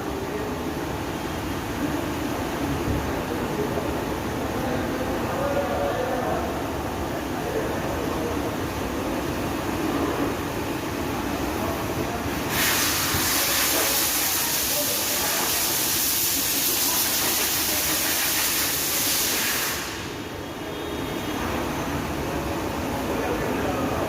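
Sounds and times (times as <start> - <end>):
workshop background noise: 0.0 - 24.0
compressed air hissing: 12.5 - 20.3.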